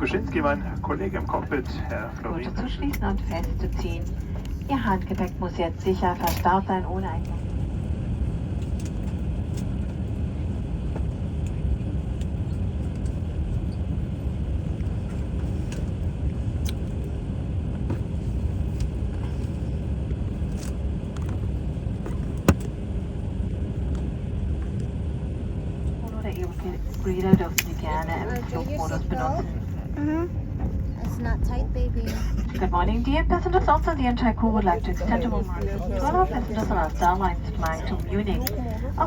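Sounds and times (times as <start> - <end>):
airliner cabin rumble: 0.0 - 39.0
faint steady hum: 0.0 - 39.0.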